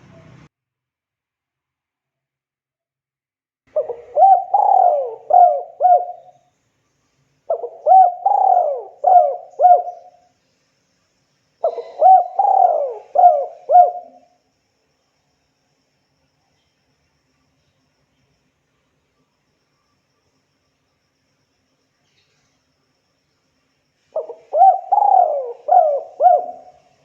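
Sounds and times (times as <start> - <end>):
dove cooing: 3.7 - 6.3, 7.5 - 10.2, 11.6 - 14.3, 24.2 - 27.0.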